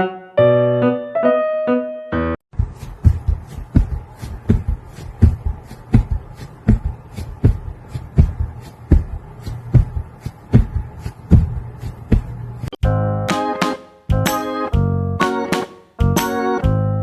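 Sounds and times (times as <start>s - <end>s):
steady low hum: 2.6s - 12.7s
rhythmic low thumps: 12.8s - 13.5s, 14.1s - 15.4s, 16.0s - 17.0s.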